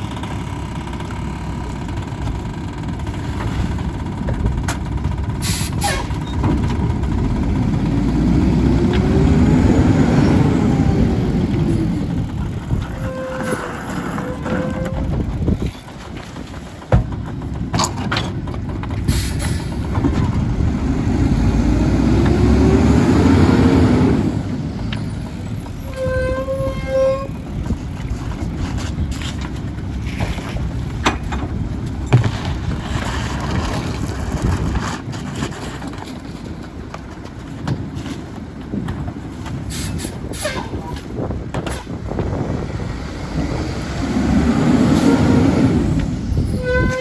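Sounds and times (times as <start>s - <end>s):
garbage truck engine running: 0.0s - 26.0s, 27.2s - 46.5s
knocks and clunks from load: 1.8s - 7.7s, 11.6s - 20.9s, 27.5s - 42.3s.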